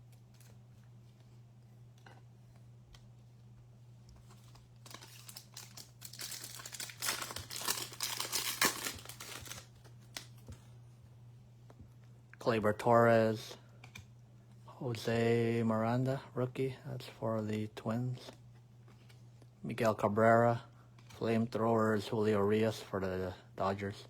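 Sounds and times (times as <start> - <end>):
foil wrapper tearing and crinkling: 4.8 - 10.4.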